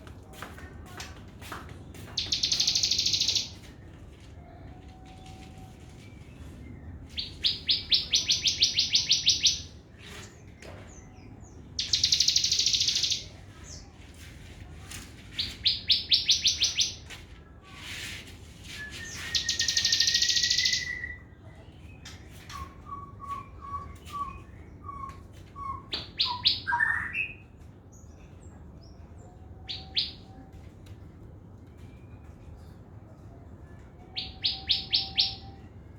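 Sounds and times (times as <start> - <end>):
songbird rattling trills: 2.2 - 3.6, 11.8 - 13.3, 19.4 - 21.0
bird rising whistle: 18.9 - 21.2.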